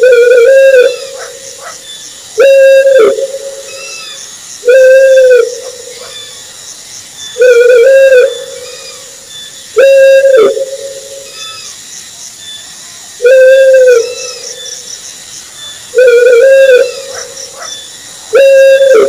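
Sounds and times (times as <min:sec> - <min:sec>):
owl hooting: 0:00.0 - 0:01.8, 0:02.4 - 0:06.4, 0:07.4 - 0:09.2, 0:09.8 - 0:11.7, 0:13.2 - 0:14.7, 0:15.9 - 0:19.0.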